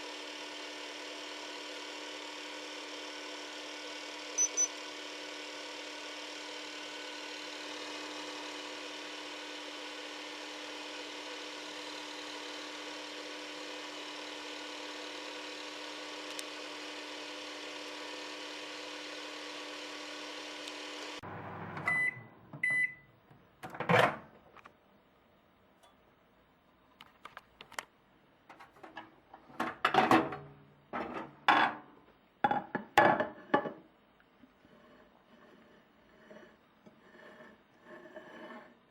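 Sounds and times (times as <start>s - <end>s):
microwave oven humming: 0.0s - 24.3s
short beeps: 4.4s - 4.7s, 21.9s - 23.1s.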